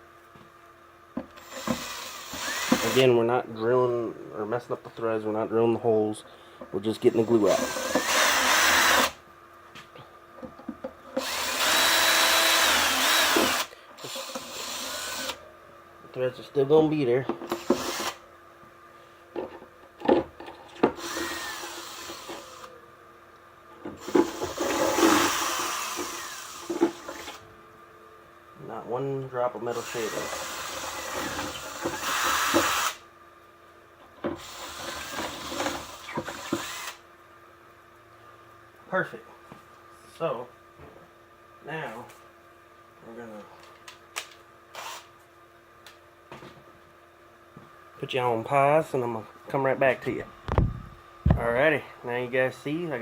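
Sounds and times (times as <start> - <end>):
power drill whine: 1.4 - 3.1, 7.2 - 9.2, 11.2 - 15.4, 17.5 - 18.2, 21.0 - 22.7, 24.0 - 27.4, 29.7 - 33.0, 34.4 - 37.0, 44.7 - 45.1.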